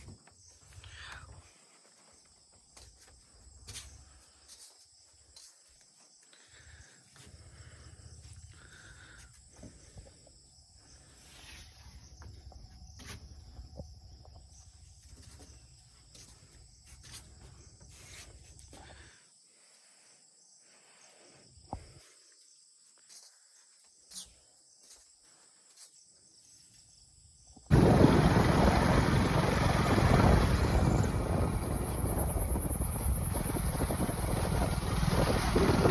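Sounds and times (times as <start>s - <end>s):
insects trilling: 0.0s - 35.9s
loud rushing noise: 27.7s - 33.4s
faint low rumble: 27.7s - 35.9s.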